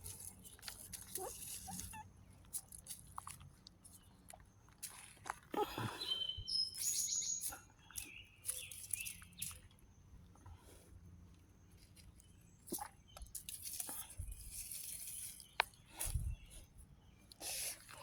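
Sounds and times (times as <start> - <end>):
birds chirping: 5.6 - 10.7.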